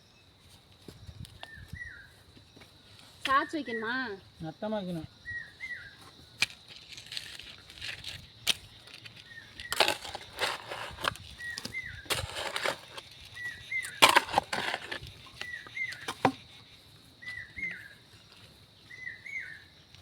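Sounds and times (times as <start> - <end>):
faint high insect-like tone: 0.0 - 20.0
soil crunching and scraping: 6.3 - 18.8.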